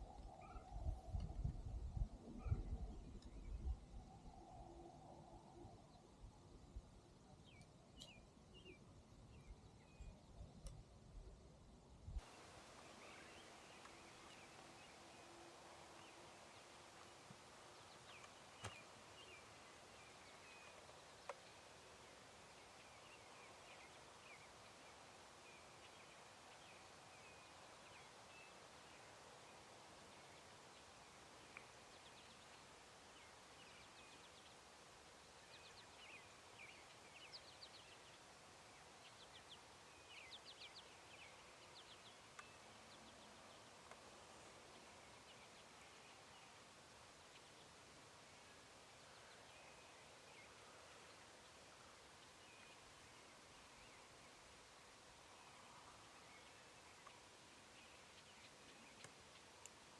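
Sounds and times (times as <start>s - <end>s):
songbird chirps: 0.0s - 59.9s.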